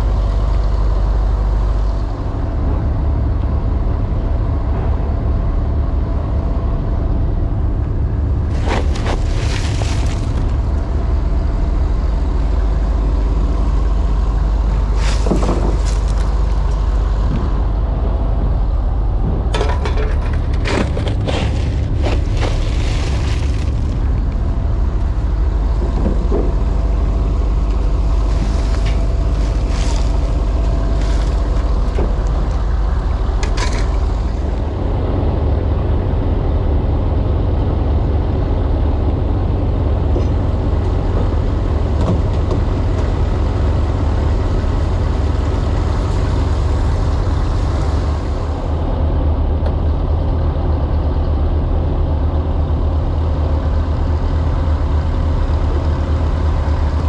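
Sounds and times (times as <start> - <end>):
large engine rumbling: 0.0 - 57.0
knocks and clattering: 19.2 - 24.1.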